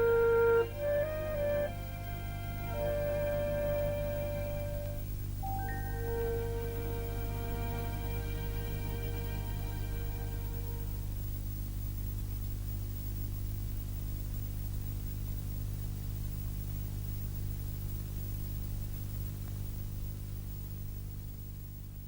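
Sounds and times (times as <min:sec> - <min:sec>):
music: 0:00.0 - 0:11.4
low hum with faint hiss: 0:00.0 - 0:22.0.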